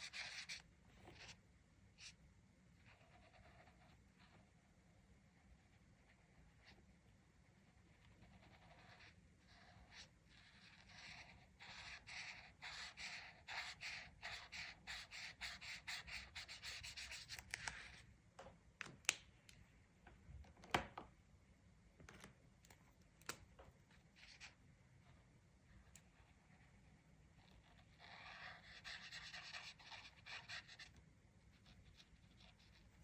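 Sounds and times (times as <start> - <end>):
coloring strokes scratching paper: 0.0 - 1.4, 2.8 - 4.5, 7.4 - 18.0, 26.1 - 33.0.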